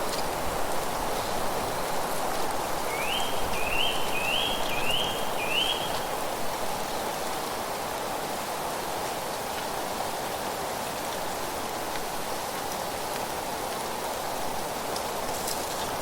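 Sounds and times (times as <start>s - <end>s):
rushing wind or water: 0.0s - 16.0s
bird whistling rising notes: 2.9s - 6.0s.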